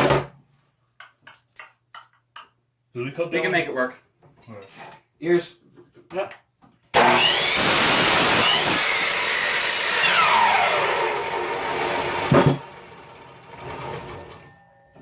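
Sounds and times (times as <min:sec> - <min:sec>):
electric saw cutting wood: 0:07.0 - 0:14.1
knock: 0:12.3 - 0:12.6.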